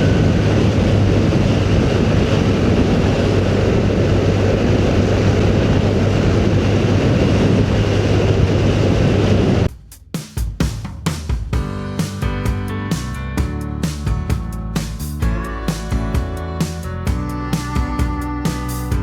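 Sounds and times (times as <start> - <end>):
rushing wind noise: 0.0 - 9.7
motorcycle engine hum: 12.4 - 19.0.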